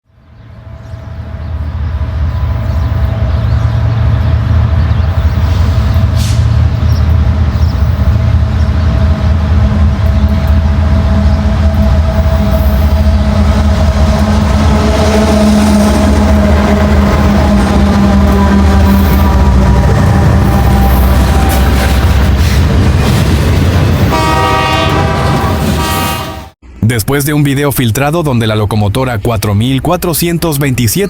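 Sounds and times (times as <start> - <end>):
locomotive engine droning: 0.1 - 26.6.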